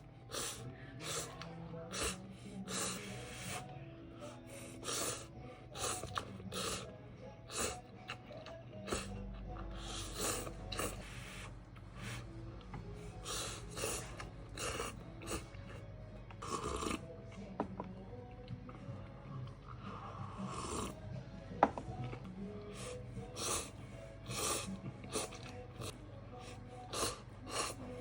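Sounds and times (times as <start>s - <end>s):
person slurping noodles: 0.0s - 3.6s, 4.6s - 6.9s, 7.5s - 8.2s, 8.8s - 9.1s, 9.8s - 12.3s, 13.2s - 15.8s, 16.4s - 17.0s, 19.9s - 21.0s, 22.8s - 28.0s.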